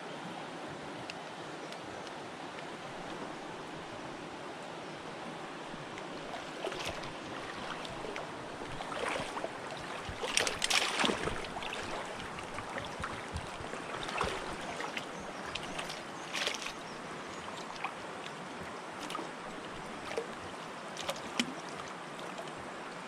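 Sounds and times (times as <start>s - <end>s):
river water running: 0.0s - 23.0s
splashes in water: 6.2s - 17.0s.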